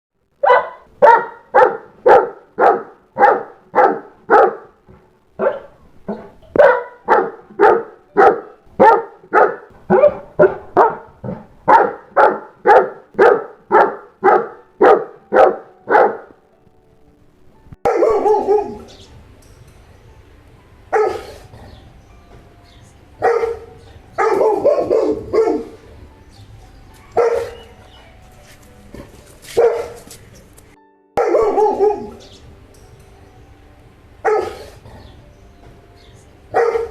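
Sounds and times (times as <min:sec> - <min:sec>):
dog barking: 0:00.4 - 0:04.8, 0:05.4 - 0:16.4, 0:17.9 - 0:19.0, 0:20.9 - 0:21.5, 0:23.2 - 0:25.8, 0:27.1 - 0:27.8, 0:29.5 - 0:30.1, 0:31.2 - 0:32.3, 0:34.2 - 0:34.8, 0:36.5 - 0:36.9.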